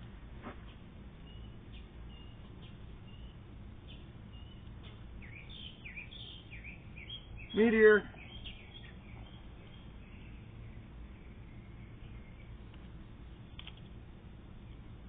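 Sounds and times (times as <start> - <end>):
low steady hum: 0.0 - 15.0
faint bird chirps: 1.2 - 12.6.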